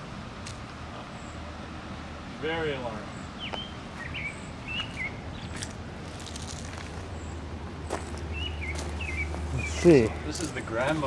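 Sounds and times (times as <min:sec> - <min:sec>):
small bird chirping: 0:03.1 - 0:05.6.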